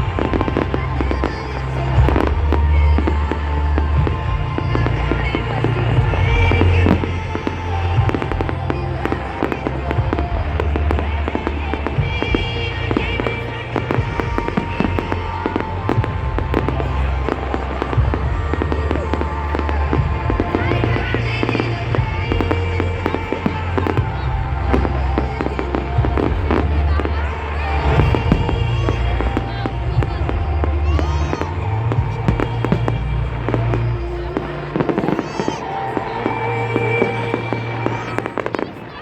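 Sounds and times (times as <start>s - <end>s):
fireworks bursting and crackling: 0.0s - 39.0s
loud music with heavy bass: 0.0s - 39.0s.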